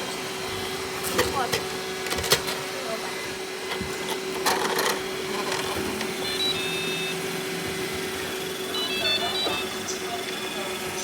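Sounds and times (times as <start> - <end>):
robot vacuum motor humming: 0.0 - 11.0
short high electronic tones: 6.2 - 7.2.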